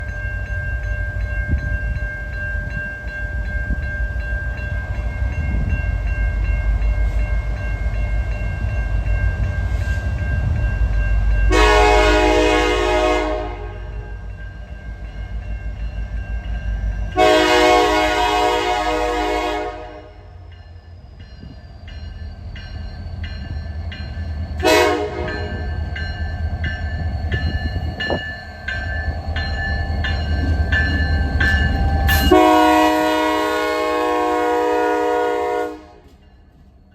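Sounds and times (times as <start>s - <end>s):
locomotive engine rumbling: 8.2s - 36.8s
train horn blasts: 11.5s - 14.2s, 17.2s - 20.3s, 24.6s - 25.7s, 32.1s - 36.2s.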